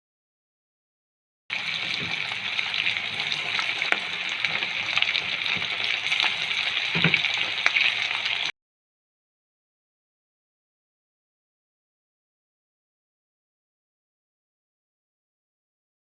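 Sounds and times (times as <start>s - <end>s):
chicken sizzling in hot oil: 1.5s - 8.5s
oil crackling and popping: 1.5s - 8.5s.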